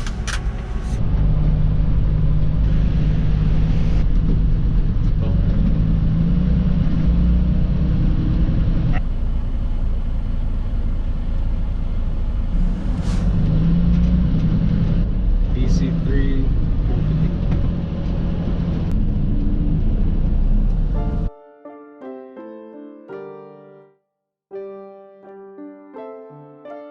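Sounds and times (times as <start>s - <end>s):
diesel truck engine rumbling: 0.0s - 21.3s.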